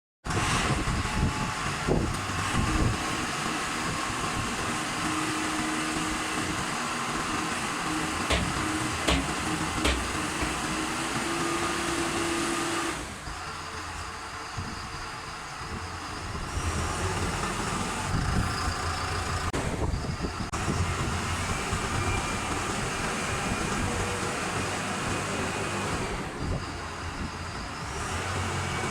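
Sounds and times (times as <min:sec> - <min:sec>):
concrete mixer truck running: 0:00.3 - 0:28.9
sharp mechanical knocks: 0:07.9 - 0:11.1.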